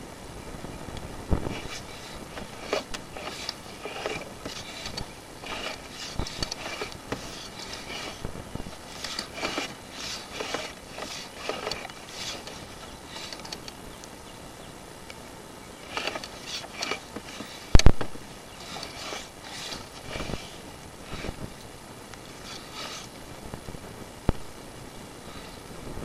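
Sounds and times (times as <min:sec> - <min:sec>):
cable scraping and rattling in drain: 0:01.4 - 0:13.8, 0:15.8 - 0:23.2.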